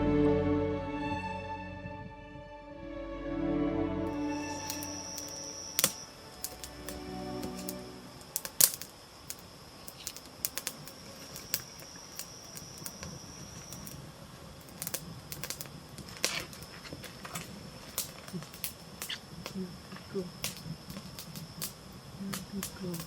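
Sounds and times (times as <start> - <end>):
campfire crackling: 4.1 - 23.0
high-pitched insect trill: 4.1 - 23.0.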